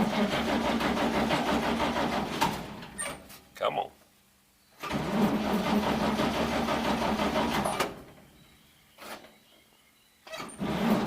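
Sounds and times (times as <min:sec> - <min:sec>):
truck engine cranking: 0:00.0 - 0:03.2, 0:04.8 - 0:08.2, 0:10.3 - 0:11.0.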